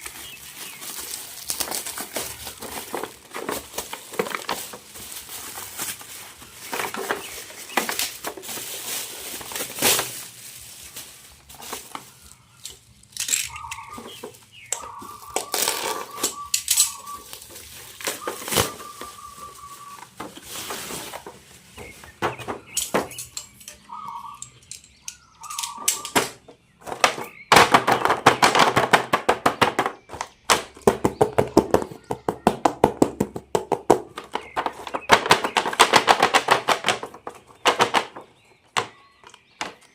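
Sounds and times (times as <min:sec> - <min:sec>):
plastic packaging rustling: 0:00.0 - 0:23.5, 0:34.1 - 0:39.9.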